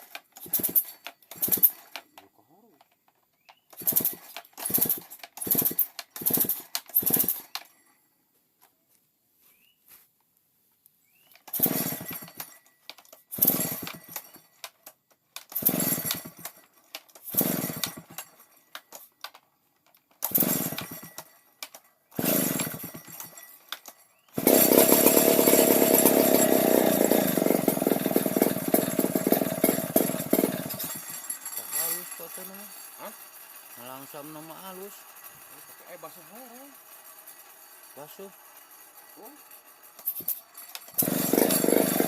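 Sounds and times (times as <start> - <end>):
chainsaw pull-start bursts: 0.0 - 2.1, 3.7 - 7.7, 11.3 - 14.8, 15.4 - 19.4, 20.1 - 42.0
chainsaw engine running: 0.3 - 2.0, 3.8 - 7.6, 11.5 - 12.5, 13.3 - 14.4, 15.4 - 16.6, 17.2 - 18.4, 20.2 - 21.4, 22.2 - 23.5, 24.4 - 42.0.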